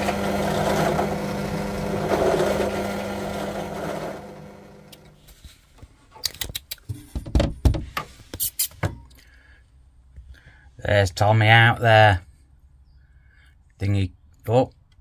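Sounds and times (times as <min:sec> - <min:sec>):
electric drill motor running: 0:00.0 - 0:05.2.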